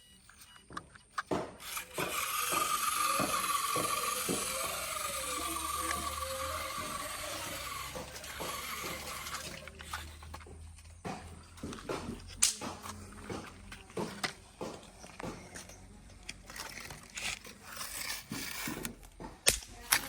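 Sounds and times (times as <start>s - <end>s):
toy electric motor whirring: 0.0s - 20.0s.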